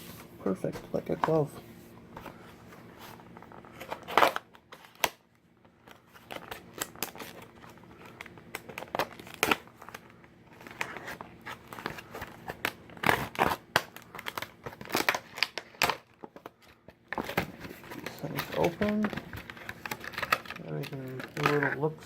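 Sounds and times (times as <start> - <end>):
plastic packaging being cut open: 8.2 - 10.0, 10.7 - 16.2.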